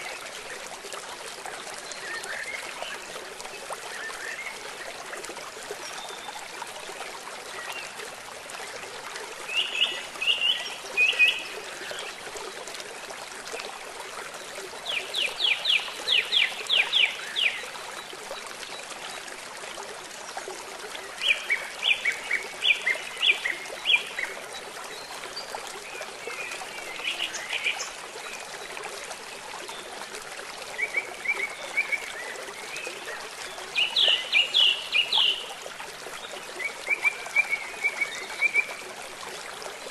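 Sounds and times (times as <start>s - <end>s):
flowing stream: 0.0s - 39.9s
rain: 0.0s - 39.9s.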